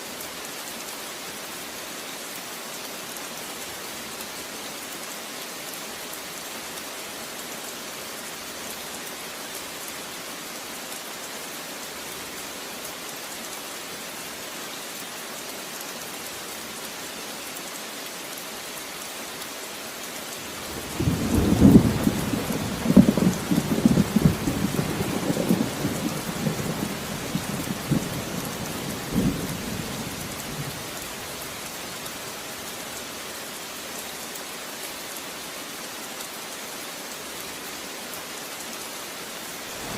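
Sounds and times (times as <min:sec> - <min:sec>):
steady rain falling: 0:00.0 - 0:39.9
thunder cracking and rumbling: 0:20.8 - 0:26.7.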